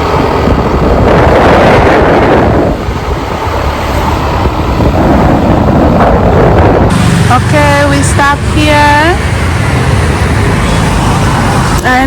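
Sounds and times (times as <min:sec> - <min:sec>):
wind buffeting microphone: 0:00.0 - 0:12.0
motorcycle engine: 0:06.8 - 0:11.8.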